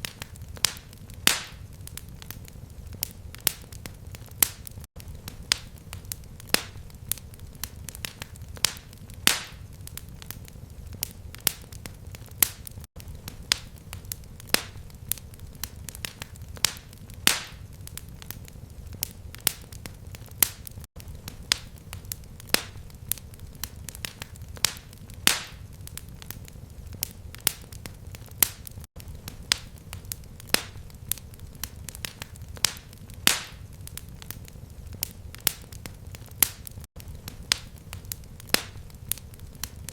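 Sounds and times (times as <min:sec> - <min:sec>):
fire crackling and popping: 0:00.0 - 0:39.9
low rumble of flame: 0:00.0 - 0:39.9.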